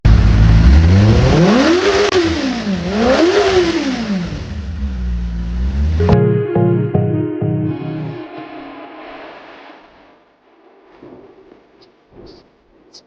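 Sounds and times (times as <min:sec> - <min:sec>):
motorcycle engine revving: 0:00.1 - 0:06.0
guitar music: 0:06.0 - 0:09.5.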